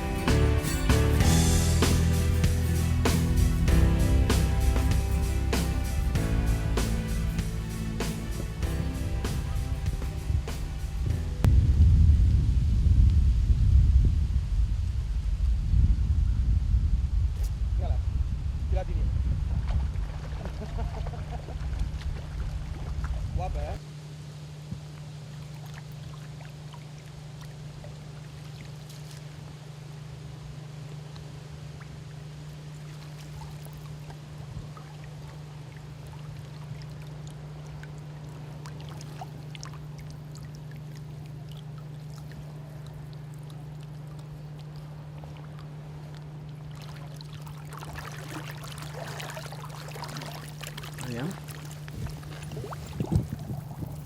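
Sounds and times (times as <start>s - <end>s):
river water flowing: 0.0s - 11.5s, 25.2s - 54.0s.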